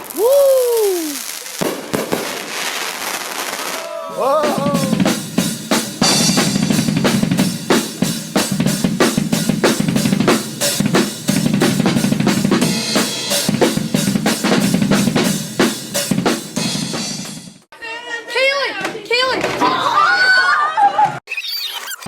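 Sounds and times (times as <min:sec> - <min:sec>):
drum kit played fast: 0:04.1 - 0:17.7.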